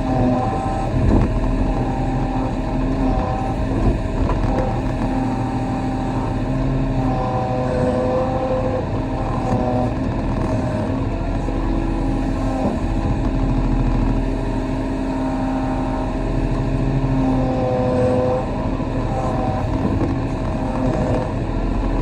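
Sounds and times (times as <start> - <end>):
excavator diesel engine running: 0.0 - 22.0
hydraulic whining: 0.0 - 22.0.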